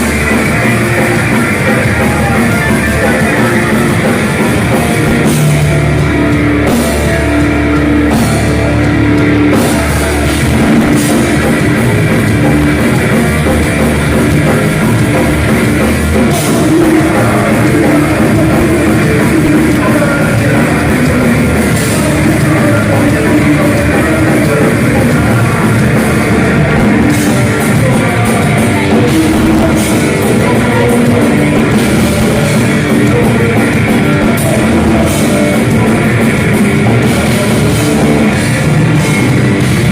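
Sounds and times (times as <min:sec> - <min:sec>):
distorted electric guitars: 0:00.0 - 0:39.9
drum kit: 0:00.0 - 0:39.9.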